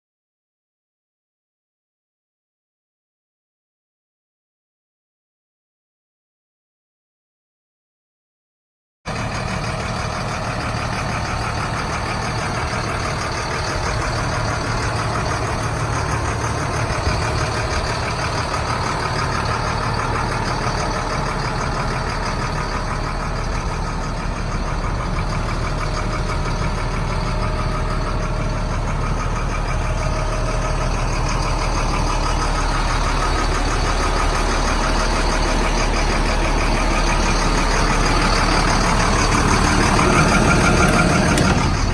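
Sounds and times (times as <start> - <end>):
diesel truck engine idling: 9.1 - 41.9.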